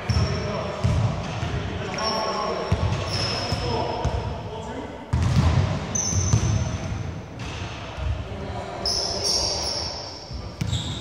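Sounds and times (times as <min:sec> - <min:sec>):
sneakers squeaking: 0:00.0 - 0:04.3, 0:05.1 - 0:08.2, 0:08.8 - 0:11.0
basketball bouncing on wooden floor: 0:05.1 - 0:06.6.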